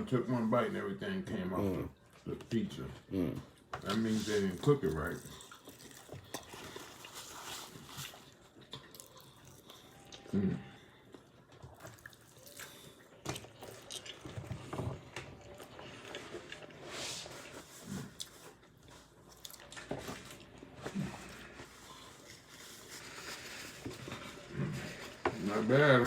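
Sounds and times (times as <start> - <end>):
wet chewing and mouth smacking: 4.6 - 10.3, 11.1 - 16.8, 17.8 - 22.5.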